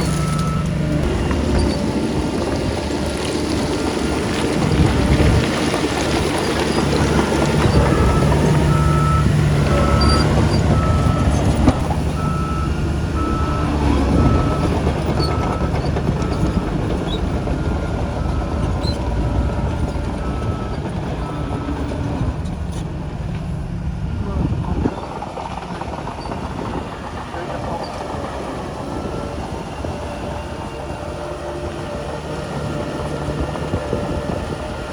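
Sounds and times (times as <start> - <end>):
diesel engine rumble: 0.0 - 34.9
reversing alarm beeping: 7.0 - 21.8.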